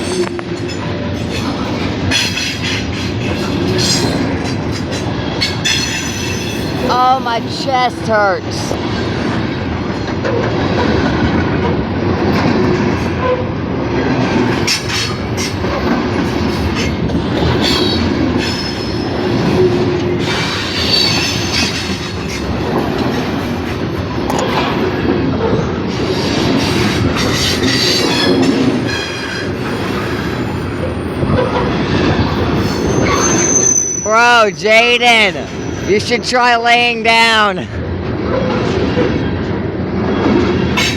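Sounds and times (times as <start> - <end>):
wheels clacking over rail joints: 0.0 - 7.6, 8.7 - 33.8, 37.7 - 40.9
train cars rumbling past: 0.0 - 40.9
high-pitched wheel squeal: 32.6 - 34.4.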